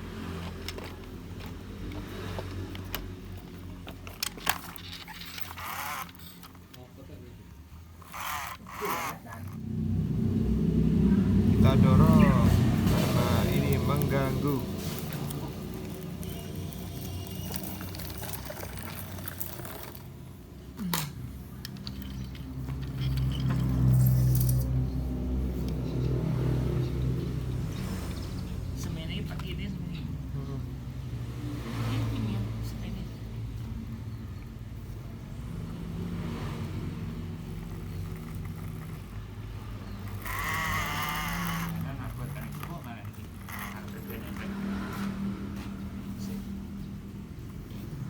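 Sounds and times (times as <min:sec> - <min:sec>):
plastic toy vehicles clicking: 0:00.3 - 0:07.0, 0:07.9 - 0:09.6, 0:12.1 - 0:24.8, 0:37.5 - 0:44.8
steady low hum: 0:08.0 - 0:16.4.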